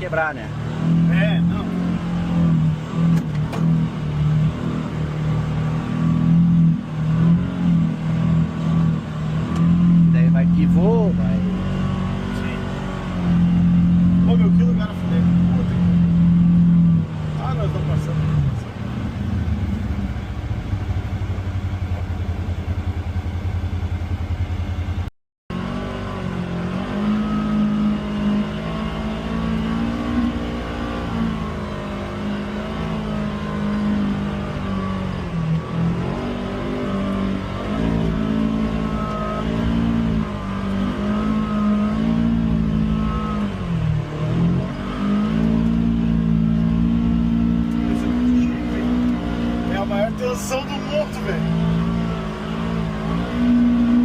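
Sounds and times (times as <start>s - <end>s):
utility vehicle engine revving: 0.0s - 54.0s.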